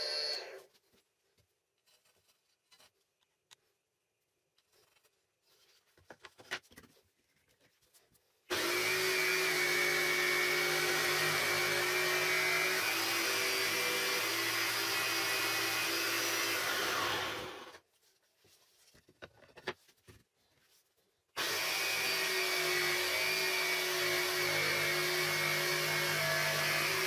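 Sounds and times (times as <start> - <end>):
electric motor humming: 8.5 - 17.8, 21.4 - 27.0.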